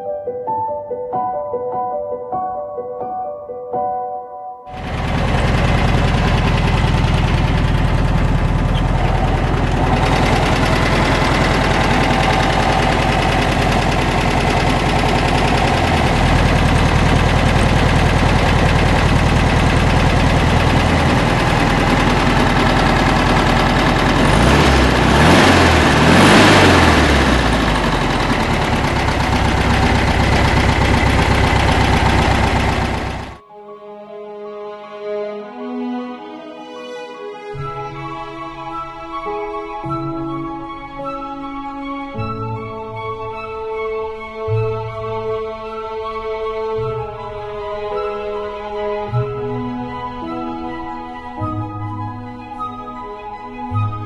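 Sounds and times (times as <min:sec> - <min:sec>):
car engine idling and revving: 0:04.7 - 0:33.4.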